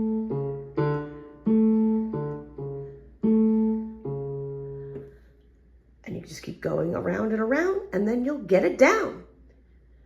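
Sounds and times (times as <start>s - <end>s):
keyboard piano bass notes: 0.0s - 7.8s.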